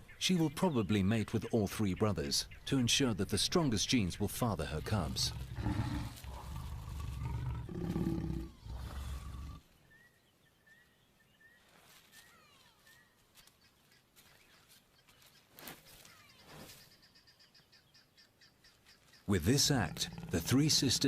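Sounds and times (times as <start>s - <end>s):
small birds chirping: 0.0s - 21.0s
lions growling: 4.7s - 9.6s, 19.4s - 21.0s.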